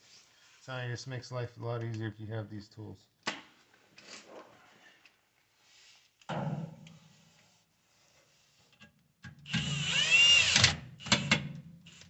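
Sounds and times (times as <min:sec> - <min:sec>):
cordless drill driving screws: 0:09.5 - 0:12.0.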